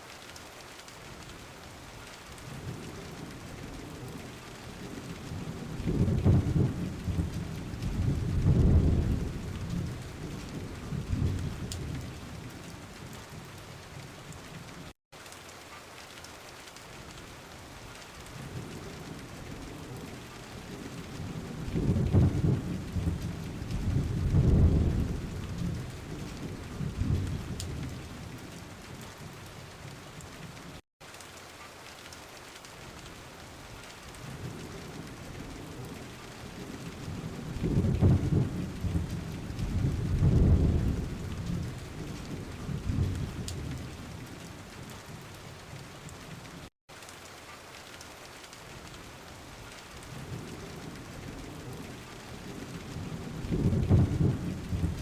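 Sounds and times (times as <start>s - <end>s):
steady rain: 0.0s - 55.0s
rolling thunder rumbles: 2.4s - 14.4s, 18.2s - 29.5s, 34.2s - 45.3s, 50.0s - 55.0s.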